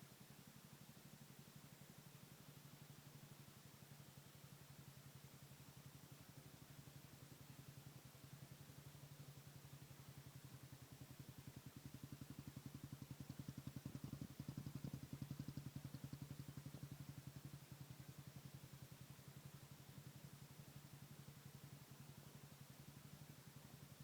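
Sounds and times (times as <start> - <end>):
atv engine idling: 6.8 - 24.0.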